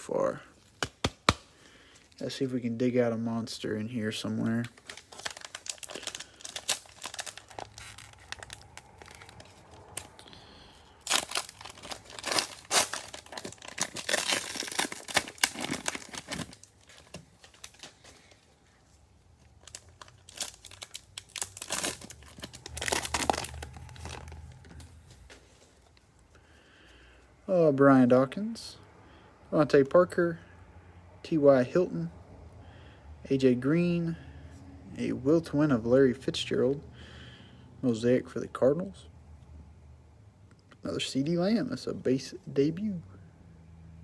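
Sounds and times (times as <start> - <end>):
cellophane wrapper crinkling: 4.4 - 26.1.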